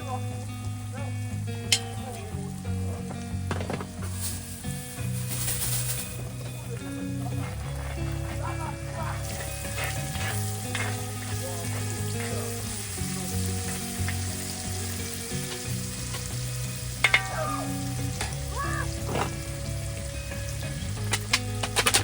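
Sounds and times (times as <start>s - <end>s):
food sizzling in a pan: 0.0s - 22.0s
soft background music: 0.0s - 22.0s
utensil clicking against pan: 1.7s - 2.1s, 9.2s - 14.5s, 20.9s - 22.0s.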